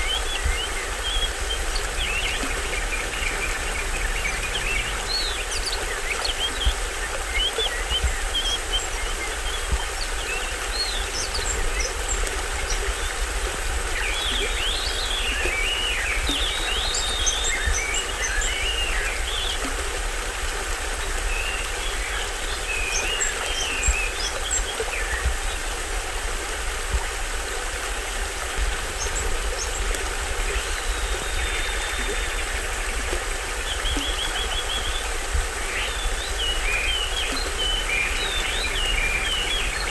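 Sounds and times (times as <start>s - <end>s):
forest birds chirping: 0.0s - 20.0s, 28.8s - 39.9s
stream splashing over waterfall: 0.0s - 39.9s.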